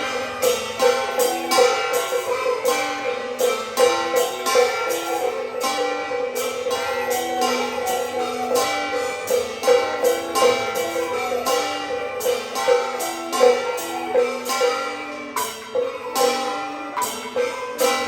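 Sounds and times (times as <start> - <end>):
sharp percussion strokes: 0.0 - 18.0.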